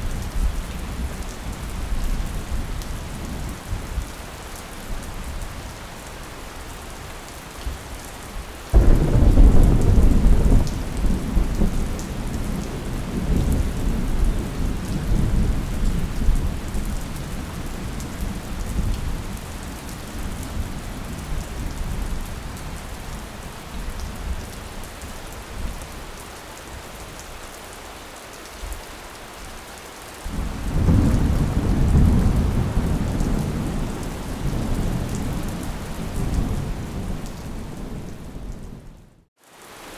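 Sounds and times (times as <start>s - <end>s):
heavy rain: 0.0s - 39.9s
thunder rumbling: 8.8s - 19.4s, 30.3s - 39.2s.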